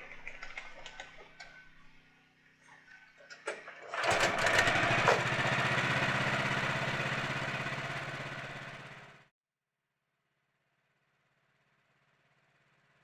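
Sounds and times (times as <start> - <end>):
engine running: 3.8 - 9.3.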